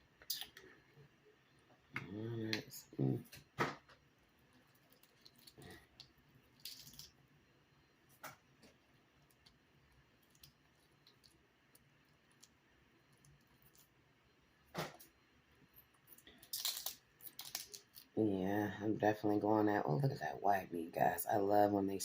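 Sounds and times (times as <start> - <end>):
crab shell clicking and squishing: 4.0 - 7.4, 8.2 - 14.1, 15.8 - 18.2
crab shell cracking: 4.4 - 7.2, 16.1 - 18.2.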